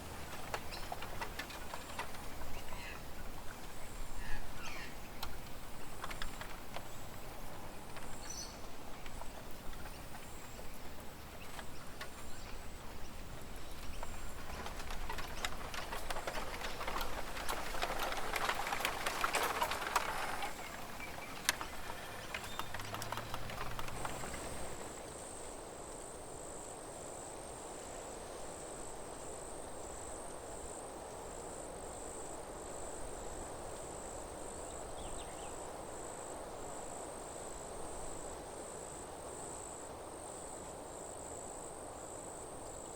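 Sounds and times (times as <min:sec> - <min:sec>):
rustling crackling noise: 0:00.0 - 0:25.6
crickets trilling: 0:00.0 - 0:27.9
soft background hiss: 0:00.0 - 0:42.9.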